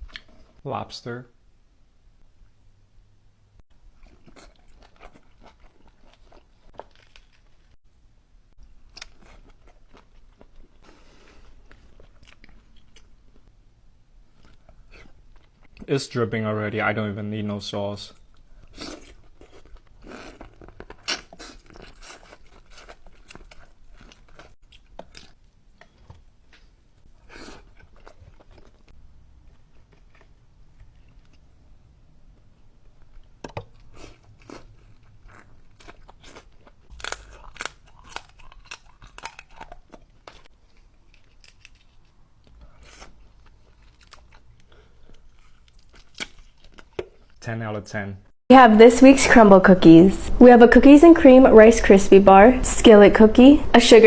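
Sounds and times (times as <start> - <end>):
person chewing and crunching: 3.7 - 7.8, 8.6 - 13.5, 14.2 - 15.8, 18.1 - 47.4.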